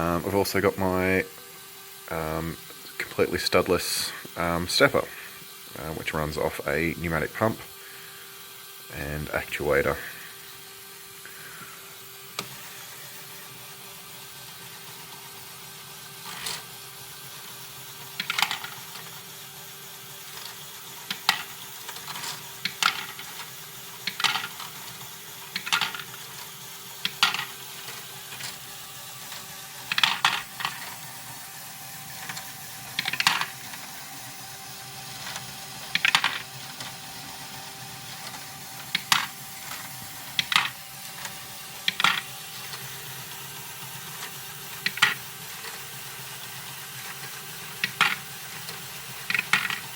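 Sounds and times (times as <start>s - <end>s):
faint motor hum: 0.0s - 49.9s
plastic parts and balls clacking: 18.2s - 19.2s, 20.4s - 31.1s, 32.1s - 34.0s, 35.1s - 49.9s.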